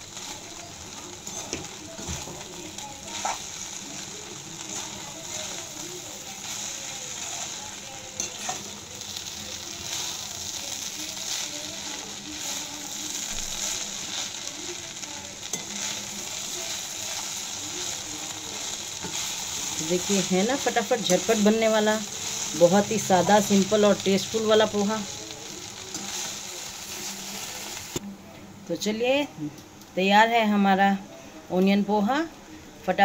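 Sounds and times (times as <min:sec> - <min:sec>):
food sizzling in a pan: 0:00.0 - 0:28.1
spatula scraping the pan: 0:03.1 - 0:03.5.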